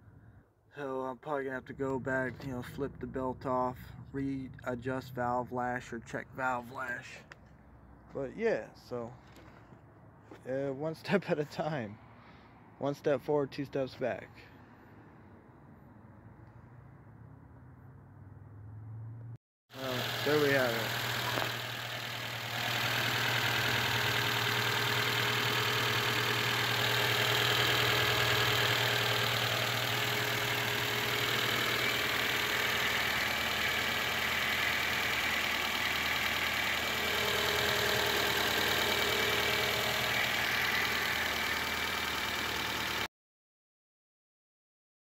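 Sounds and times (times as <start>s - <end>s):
car engine idling: 19.8s - 43.1s.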